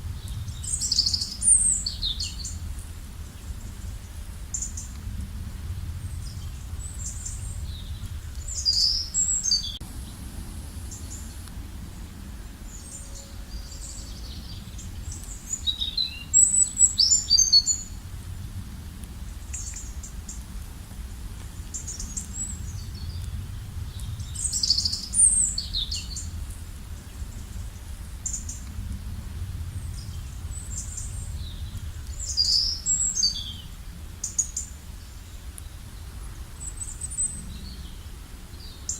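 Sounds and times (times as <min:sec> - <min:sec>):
steady low rumble: 0:00.0 - 0:38.9
songbird chirping: 0:00.1 - 0:05.0, 0:06.0 - 0:18.1, 0:21.6 - 0:28.7, 0:29.8 - 0:38.9.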